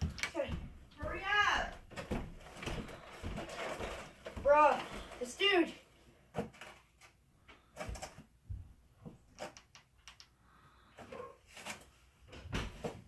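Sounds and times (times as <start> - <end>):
soft knocks and thumps: 0.0 - 5.2, 7.8 - 9.8
rustling: 0.0 - 8.3.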